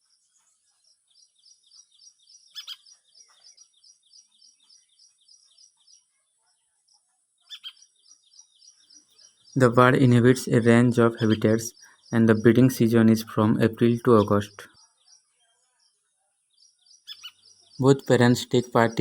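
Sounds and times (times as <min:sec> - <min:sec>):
bird chick chirping: 0:00.0 - 0:06.5, 0:07.4 - 0:09.7, 0:16.7 - 0:19.0.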